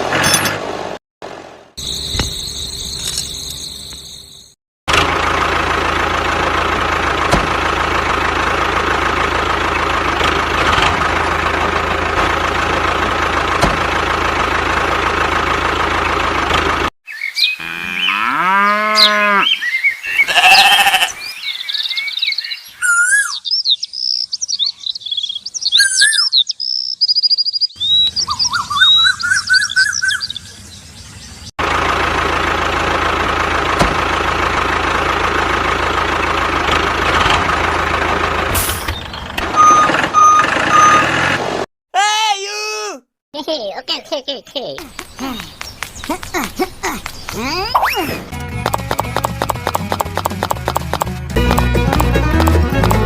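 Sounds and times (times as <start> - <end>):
birds chirping and whistling: 1.8 - 4.6, 17.1 - 31.5, 38.8 - 40.4, 44.9 - 48.3
farm animal calls: 17.2 - 21.4
cow mooing: 17.6 - 19.6, 20.3 - 21.1.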